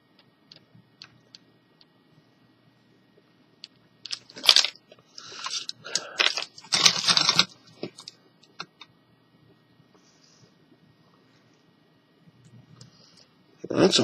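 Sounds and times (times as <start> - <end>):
cables rustling: 4.0 - 8.8
plastic parts clicking: 5.4 - 8.8.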